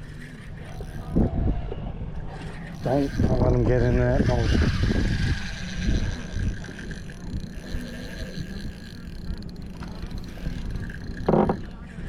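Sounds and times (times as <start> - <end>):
wind buffeting microphone: 0.6 - 12.0.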